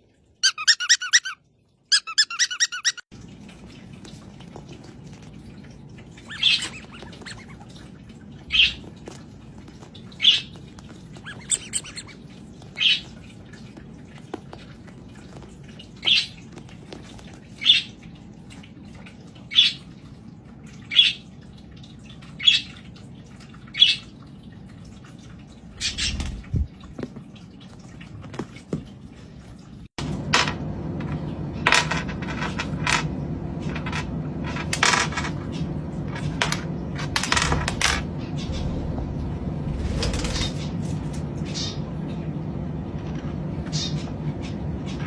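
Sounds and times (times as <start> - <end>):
parrot calling loudly: 0.4 - 3.1, 11.2 - 12.2.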